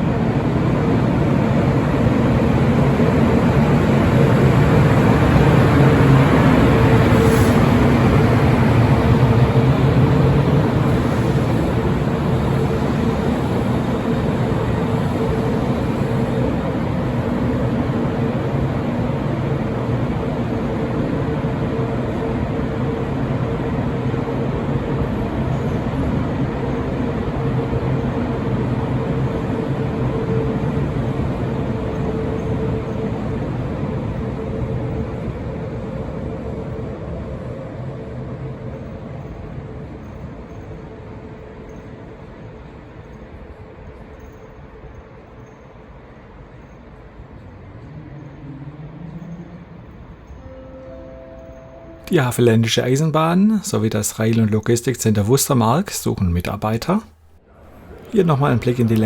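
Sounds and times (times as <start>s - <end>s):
train rumbling past: 0.0s - 59.0s
low hum: 46.5s - 59.0s
high steady tone: 47.8s - 59.0s.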